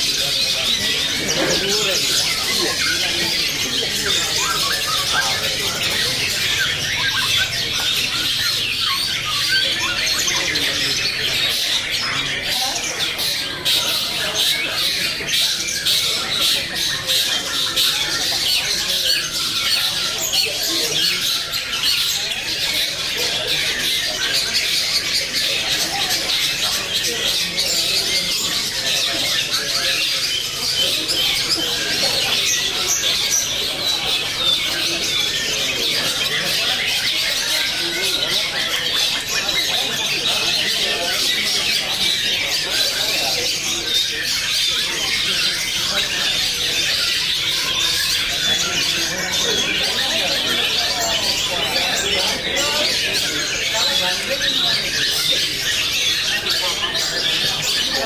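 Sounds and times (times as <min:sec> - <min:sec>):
shrike chattering squawking song: 0:00.0 - 0:23.1
songbirds chirping: 0:00.0 - 0:58.0.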